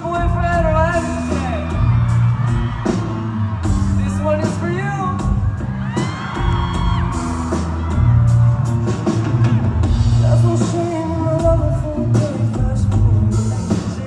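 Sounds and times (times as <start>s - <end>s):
bass line: 0.0s - 14.0s
drum kit hits: 0.1s - 11.6s
person singing: 10.2s - 14.0s.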